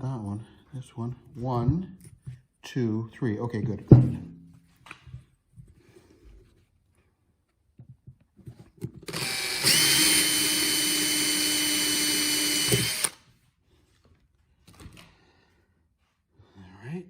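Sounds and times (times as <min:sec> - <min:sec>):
small power tool whining: 0:09.0 - 0:13.2.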